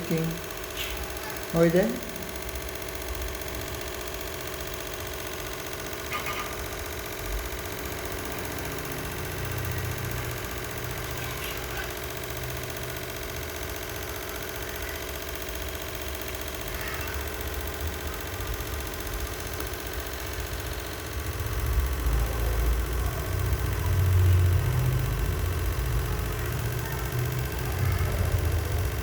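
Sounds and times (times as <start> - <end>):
mechanical hum with low rumble: 0.0 - 29.0.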